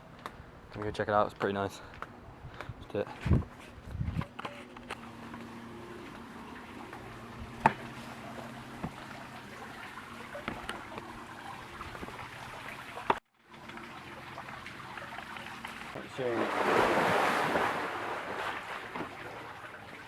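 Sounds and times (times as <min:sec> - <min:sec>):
steady low hum: 0:00.0 - 0:19.7
faint trickling water: 0:05.0 - 0:16.6.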